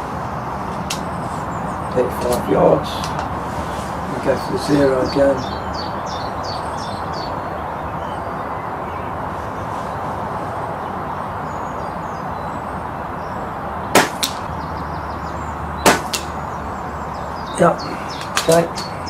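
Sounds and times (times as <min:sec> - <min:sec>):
air rifle shot: 0:13.9 - 0:14.4, 0:15.8 - 0:16.4
pellet striking target: 0:13.9 - 0:14.4, 0:15.8 - 0:16.4
sharp click: 0:18.2 - 0:18.9.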